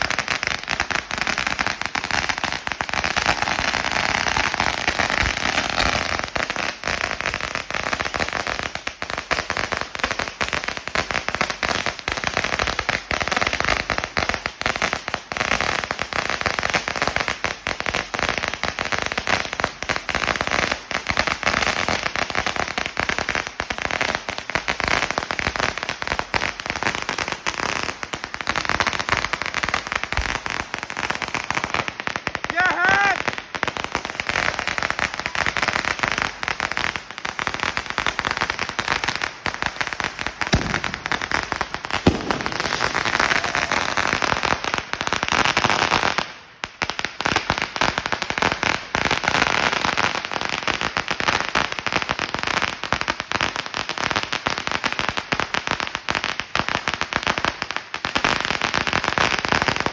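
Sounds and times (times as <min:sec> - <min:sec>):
firecracker roll banging: 0:40.5 - 0:43.9.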